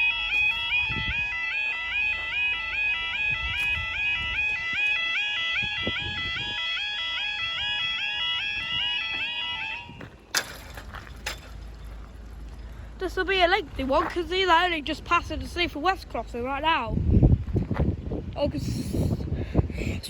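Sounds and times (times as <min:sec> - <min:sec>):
level crossing two-tone alarms: 0:00.0 - 0:10.3.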